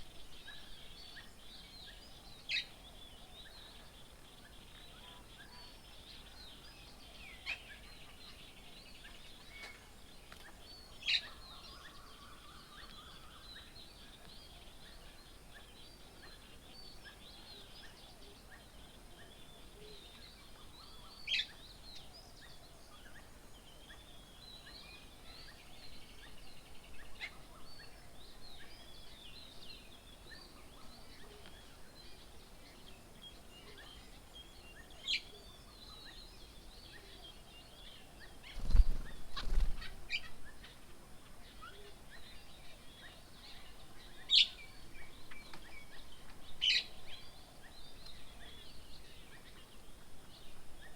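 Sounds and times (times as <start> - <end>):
birds chirping and chattering: 23.2 - 50.9.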